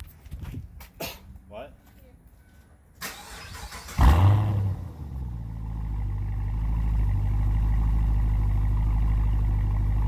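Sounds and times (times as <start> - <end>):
car engine starting and idling: 3.0 - 10.0.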